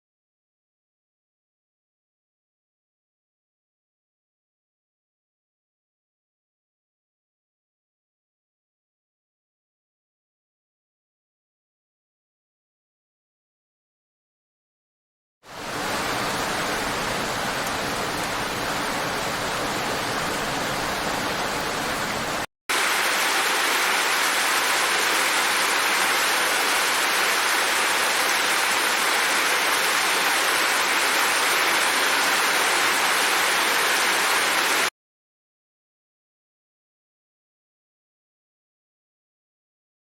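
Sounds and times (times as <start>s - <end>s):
steady rain hissing: 15.5s - 34.9s.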